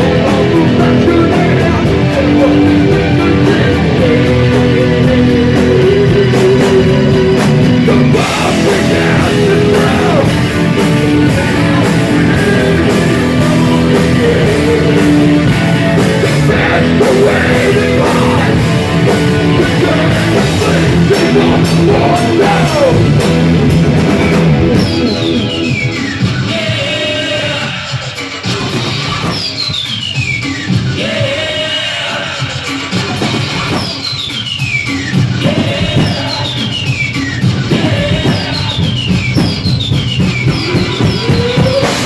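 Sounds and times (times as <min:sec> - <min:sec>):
bass guitar: 0:00.0 - 0:27.6, 0:37.4 - 0:42.0
electric guitar: 0:00.0 - 0:27.7, 0:37.4 - 0:42.0
drum kit and cymbals: 0:00.0 - 0:42.0.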